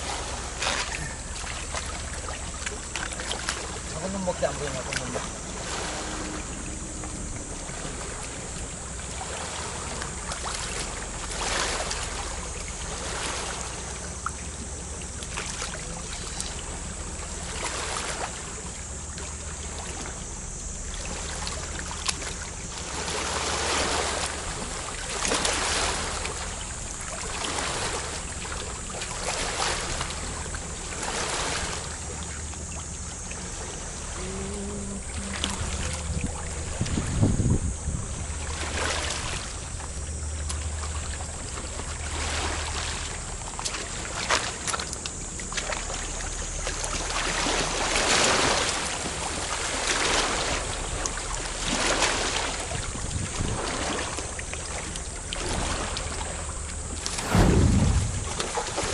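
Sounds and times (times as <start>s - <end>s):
seawater sloshing and splashing: 0.0s - 34.2s, 34.8s - 46.1s, 56.9s - 58.9s
wind rumbling on microphone: 5.0s - 11.9s, 33.9s - 40.1s, 56.9s - 58.9s
hiss of water: 57.0s - 58.9s.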